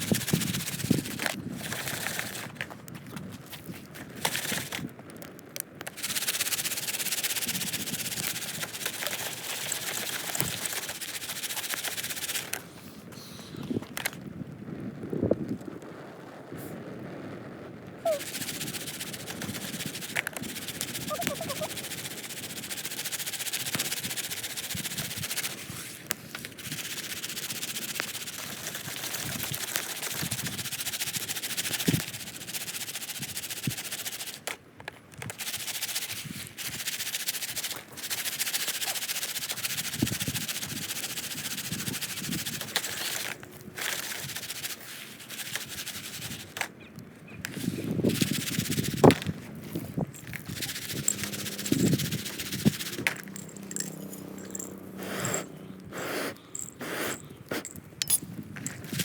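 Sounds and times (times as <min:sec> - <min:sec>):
popcorn popping: 0:18.1 - 0:22.0
kernels rattling in popper: 0:50.1 - 0:55.4, 0:56.5 - 0:59.0.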